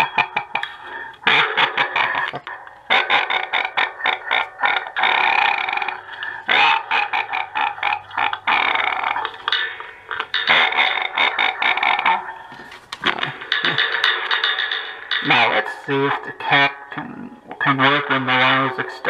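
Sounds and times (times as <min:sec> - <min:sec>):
distorted voice from toy speaker: 0:00.0 - 0:14.1, 0:15.1 - 0:19.0.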